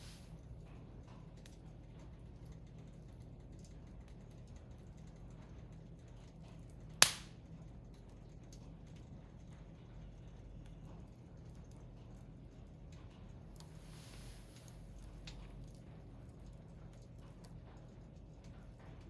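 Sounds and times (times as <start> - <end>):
wood fire crackling: 0.0 - 0.6, 6.5 - 9.1, 10.8 - 19.0
loud sharp pop from fire: 7.0 - 7.4.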